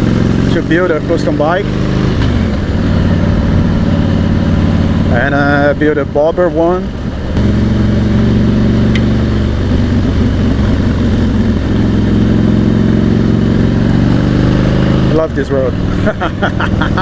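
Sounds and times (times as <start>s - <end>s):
motorcycle engine cruising: 0.0s - 17.0s
wind noise: 1.9s - 5.6s.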